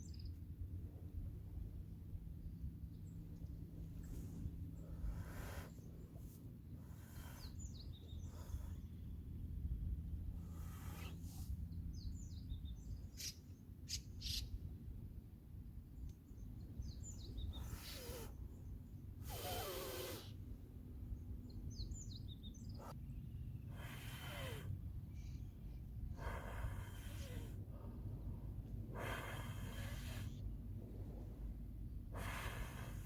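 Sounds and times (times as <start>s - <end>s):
low outdoor rumble: 0.0s - 19.4s, 20.2s - 33.0s
small birds chirping: 2.4s - 14.6s, 15.9s - 20.4s, 21.1s - 25.9s
hissing bursts: 19.2s - 20.3s.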